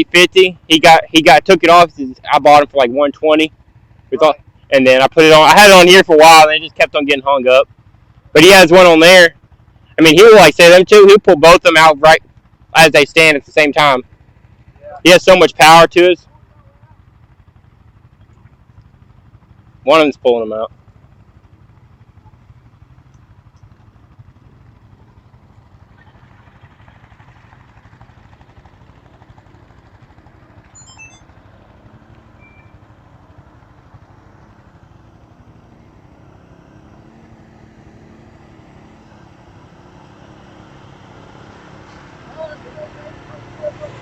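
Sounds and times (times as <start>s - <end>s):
atv engines idling: 0.0s - 44.0s
distant engine revving: 21.4s - 44.0s.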